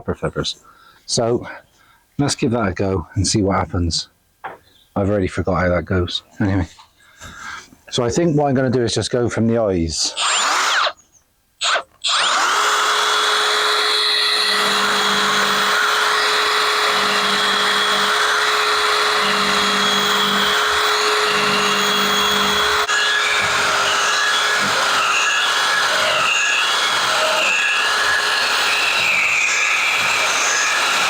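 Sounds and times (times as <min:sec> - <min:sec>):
belt sander whining on wood: 0:10.2 - 0:10.9, 0:11.6 - 0:31.0.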